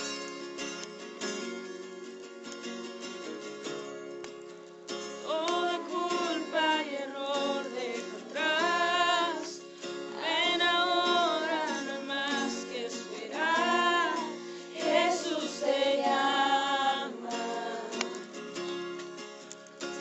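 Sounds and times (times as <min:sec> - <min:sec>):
acoustic guitar: 0:00.0 - 0:20.0
person singing with vibrato: 0:05.2 - 0:18.4.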